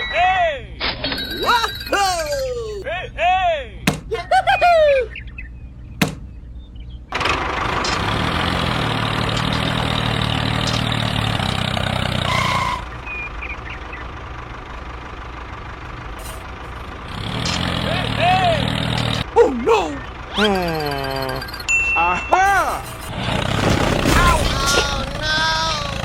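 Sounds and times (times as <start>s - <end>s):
short knock: 3.9s - 4.2s, 6.0s - 6.3s
engine starting and idling: 7.1s - 19.2s, 23.1s - 26.0s.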